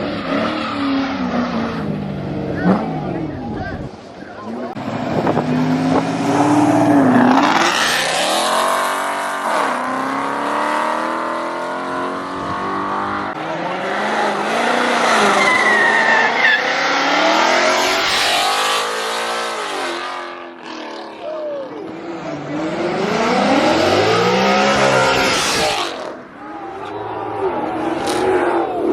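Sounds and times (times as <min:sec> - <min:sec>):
car engine revving: 0:04.4 - 0:28.9
tire squeal: 0:15.1 - 0:18.5.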